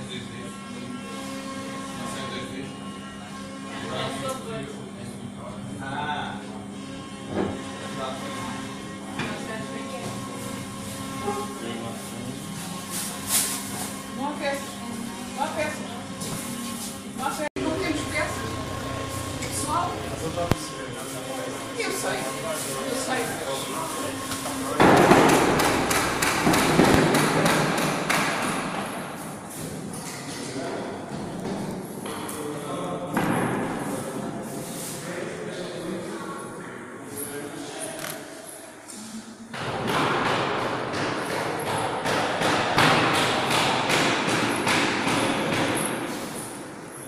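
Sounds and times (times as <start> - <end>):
knocking and thudding: 24.8 - 28.6
dense clattering noise: 24.8 - 28.7.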